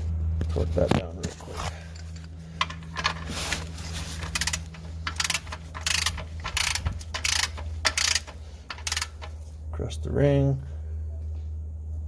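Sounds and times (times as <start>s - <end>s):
torque wrench ratchet clicking: 4.2s - 9.4s.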